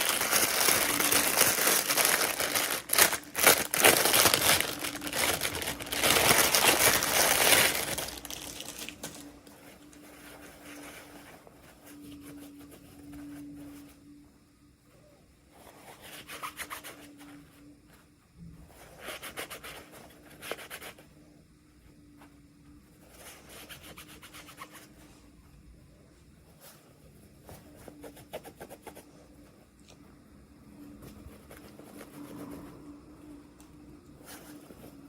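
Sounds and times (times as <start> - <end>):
packaging crinkling: 0.0 - 9.5
faint steady hum: 0.0 - 35.0.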